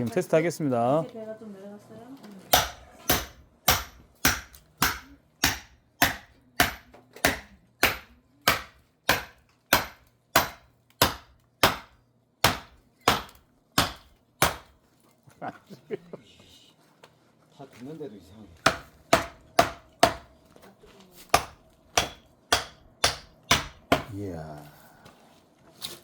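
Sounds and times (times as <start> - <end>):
firewood being split: 18.6 - 20.4.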